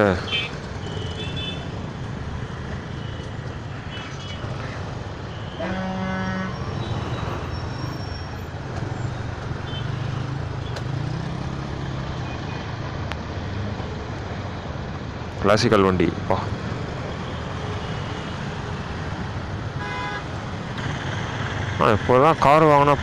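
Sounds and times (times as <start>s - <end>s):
engine hum of traffic: 0.0s - 23.0s
traffic noise: 0.0s - 23.0s
vehicle horn: 5.4s - 6.9s, 19.8s - 20.3s.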